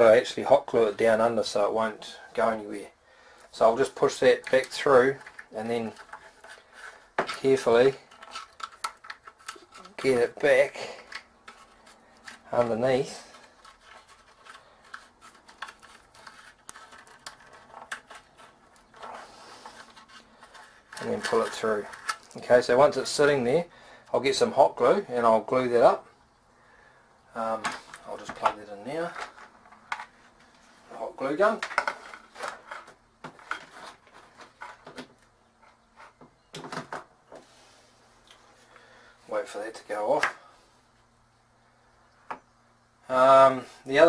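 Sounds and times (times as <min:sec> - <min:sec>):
cable rubbing: 0:04.1 - 0:22.4.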